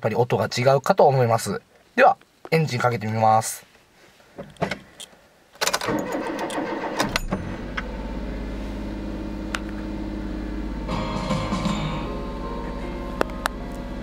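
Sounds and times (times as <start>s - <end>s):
engine cranking and starting: 5.6s - 8.5s
engine idling: 7.3s - 14.0s
car stereo playing music: 7.5s - 14.0s.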